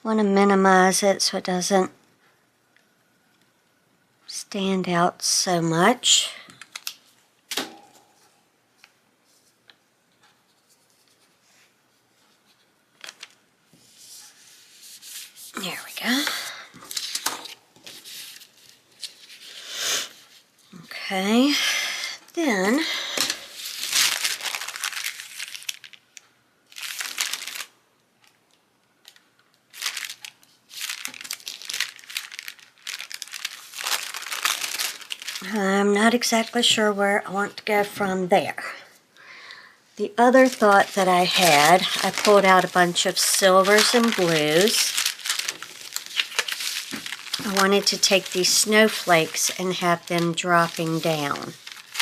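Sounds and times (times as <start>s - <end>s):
craft supplies crinkling: 22.6s - 26.0s, 26.7s - 27.7s, 29.0s - 35.6s, 40.3s - 52.0s.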